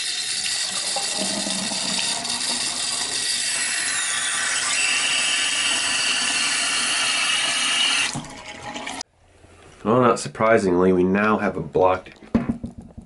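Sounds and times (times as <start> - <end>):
tap water running into sink: 0.0 - 9.0.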